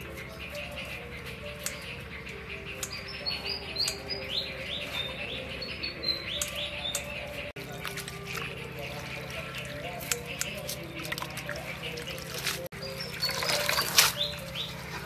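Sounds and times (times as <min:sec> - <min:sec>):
small birds chirping: 0:00.0 - 0:15.0
soft background music: 0:00.0 - 0:15.0
scissors snipping: 0:01.6 - 0:01.9, 0:03.8 - 0:04.2, 0:06.4 - 0:07.1, 0:09.6 - 0:11.5.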